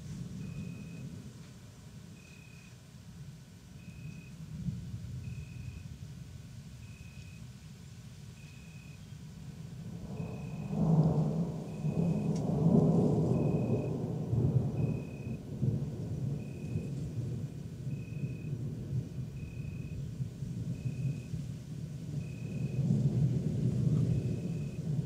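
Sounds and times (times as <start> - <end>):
deep thunder rumble: 0.0 - 1.6, 9.3 - 25.0.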